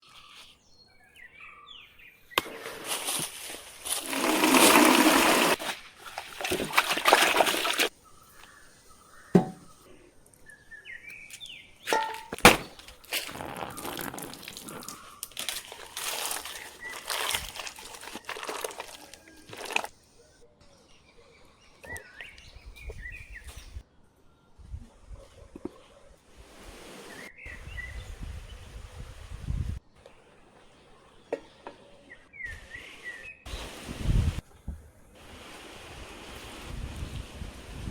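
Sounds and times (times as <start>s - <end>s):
water pouring and splashing: 2.8s - 7.9s, 11.9s - 19.9s
sharp knocks: 9.4s - 9.7s.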